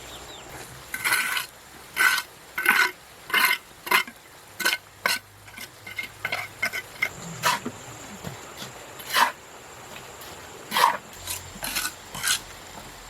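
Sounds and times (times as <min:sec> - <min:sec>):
scraping strokes: 0:00.9 - 0:07.8, 0:08.6 - 0:09.4, 0:10.2 - 0:12.5.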